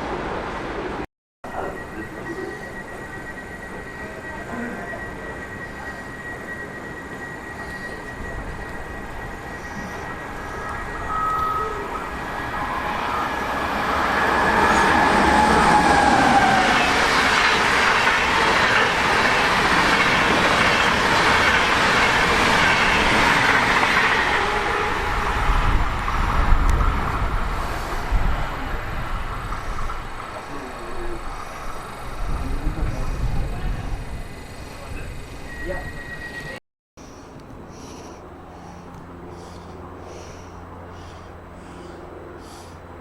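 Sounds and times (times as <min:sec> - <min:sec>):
train rumbling past: 0:00.0 - 0:43.0
faint whine: 0:01.5 - 0:16.4.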